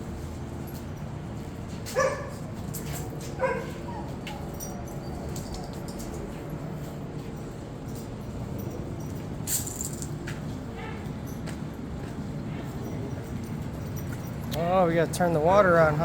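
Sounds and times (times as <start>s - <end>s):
dog barking: 1.9s - 2.4s, 3.4s - 4.1s, 10.8s - 11.1s.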